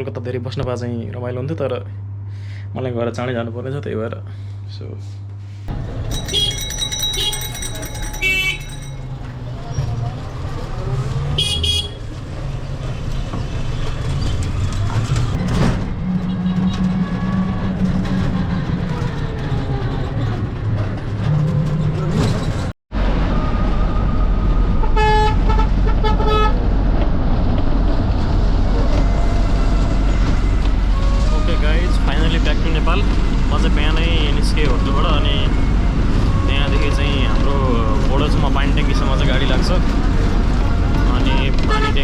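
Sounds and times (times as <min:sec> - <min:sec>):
vehicle engines running: 0:05.5 - 0:42.0
car horn honks: 0:08.2 - 0:08.7, 0:11.4 - 0:12.1.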